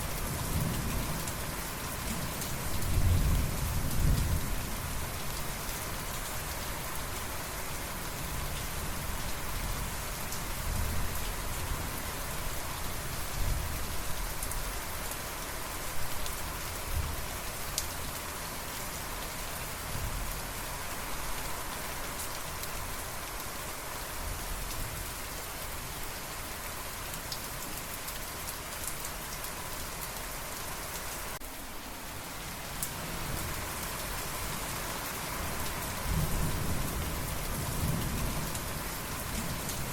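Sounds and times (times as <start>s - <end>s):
steady rain falling: 0.0s - 39.9s
faint thunder rumbles: 35.9s - 39.9s.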